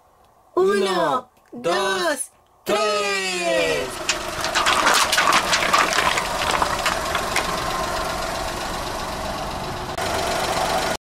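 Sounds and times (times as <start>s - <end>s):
car engine idling: 3.8s - 11.0s
plastic cups crushed: 4.0s - 7.6s.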